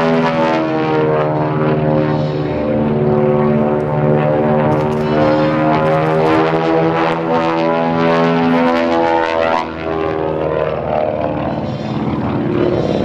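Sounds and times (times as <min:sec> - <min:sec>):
plane radial engines roaring past: 0:00.0 - 0:13.0.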